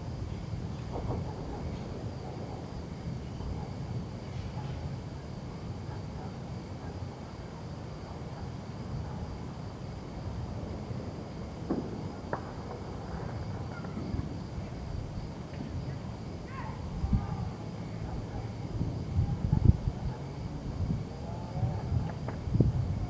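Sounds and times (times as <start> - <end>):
distant fireworks popping and booming: 0.8 - 2.6, 11.6 - 15.8, 21.8 - 23.0.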